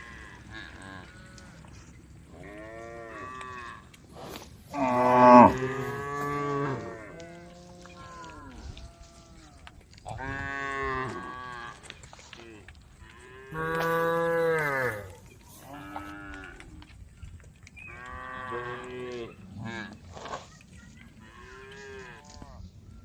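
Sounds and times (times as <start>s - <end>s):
cows mooing: 4.7s - 9.2s, 13.4s - 16.6s.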